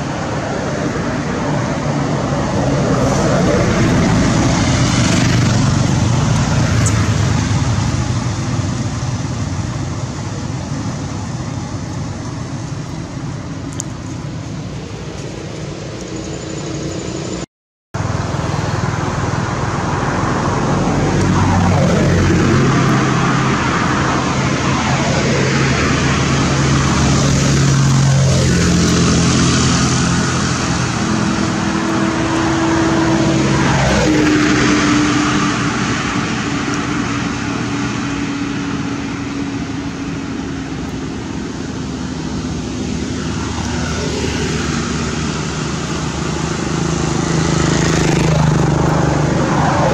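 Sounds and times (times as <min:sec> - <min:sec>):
traffic engine rumble: 0:00.0 - 0:49.9
vehicles passing close by: 0:00.0 - 0:49.9.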